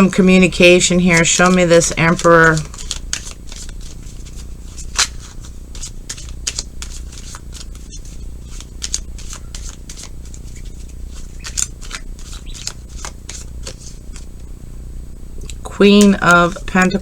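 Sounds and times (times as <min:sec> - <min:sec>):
cards being shuffled: 0:00.6 - 0:14.5.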